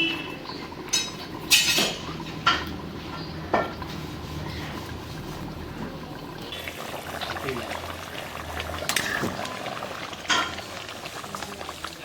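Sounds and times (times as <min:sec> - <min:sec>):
metal utensils clinking on dishes: 0:00.9 - 0:02.7.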